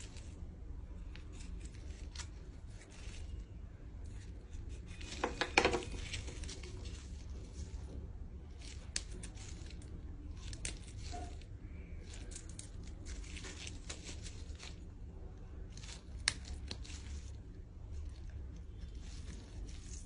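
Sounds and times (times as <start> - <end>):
snipping and tearing chicken feet: 8.5 - 14.9, 15.6 - 20.0.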